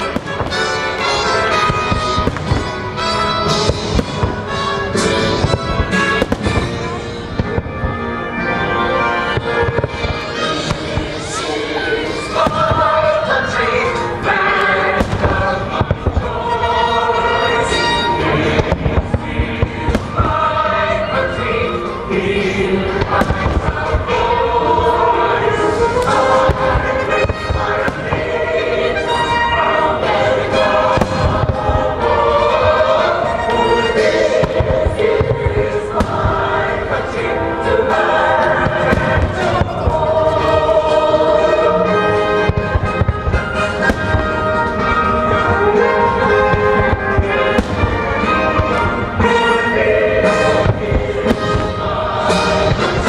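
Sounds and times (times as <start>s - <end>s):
fireworks bangs and crackles: 0.0s - 53.0s
orchestral music: 0.0s - 53.0s.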